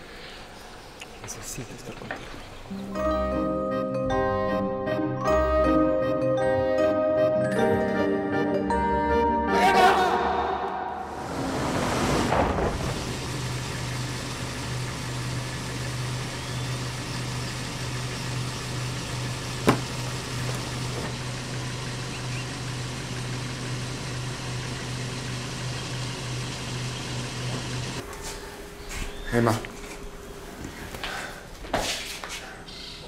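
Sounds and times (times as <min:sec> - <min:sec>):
car engine idling: 0:12.2 - 0:28.0.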